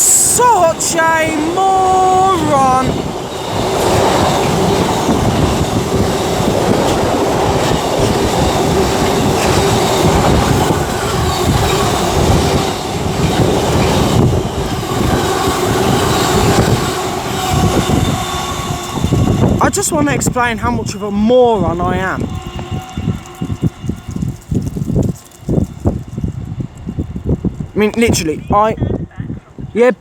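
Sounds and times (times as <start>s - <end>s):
ringing tone from wheels on rails: 0.0s - 27.8s
wagon wheels clattering over rail joints: 3.0s - 26.6s.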